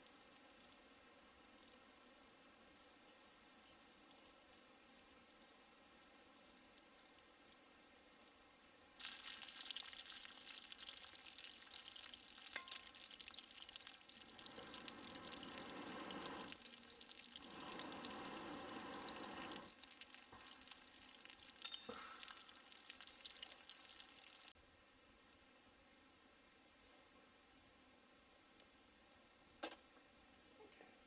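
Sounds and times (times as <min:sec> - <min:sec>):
food sizzling in a pan: 0:09.0 - 0:24.6.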